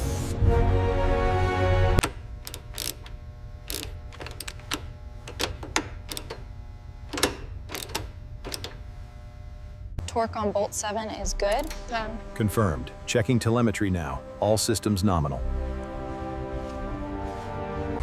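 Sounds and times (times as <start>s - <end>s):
tool clicking on bolts: 2.0s - 6.5s, 7.1s - 8.8s, 11.4s - 12.1s.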